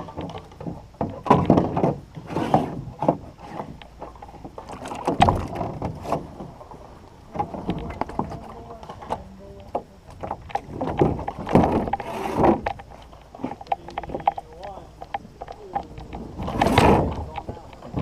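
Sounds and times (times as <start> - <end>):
hollow knocks against canoe hull: 0.0 - 6.6, 7.3 - 14.7.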